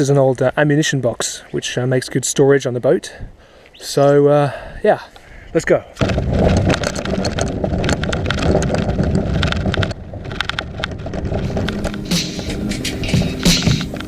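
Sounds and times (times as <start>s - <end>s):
boat hull rattling: 6.0s - 14.0s
wheels rolling on pavement: 6.0s - 14.0s.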